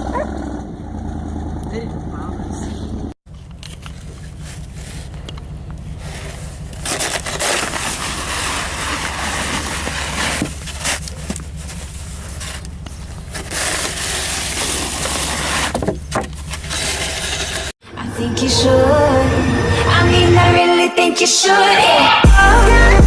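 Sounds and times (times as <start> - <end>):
steady low hum: 1.7 - 17.4
shovel scraping through snow: 3.7 - 17.7.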